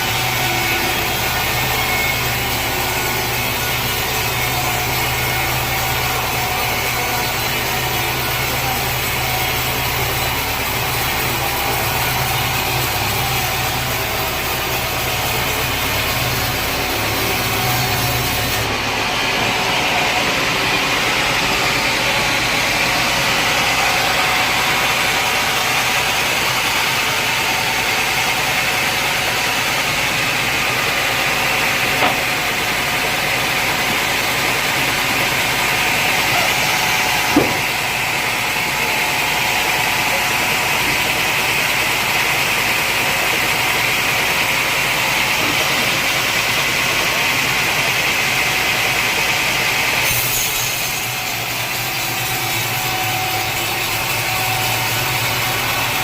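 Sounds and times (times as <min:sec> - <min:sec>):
sawmill machinery hum: 0:00.0 - 0:56.0
steady machine whir: 0:00.0 - 0:56.0.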